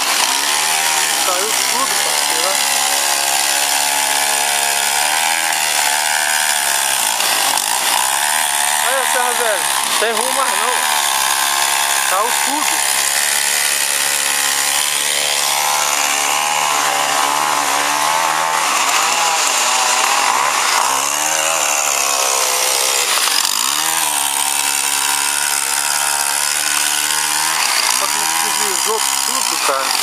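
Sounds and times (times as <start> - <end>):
chainsaw running: 0.0 - 30.0.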